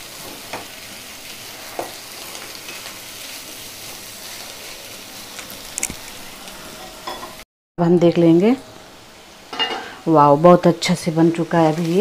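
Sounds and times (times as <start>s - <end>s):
food sizzling in a pan: 0.0s - 7.4s, 8.0s - 12.0s
spatula scraping a pan: 1.4s - 4.1s.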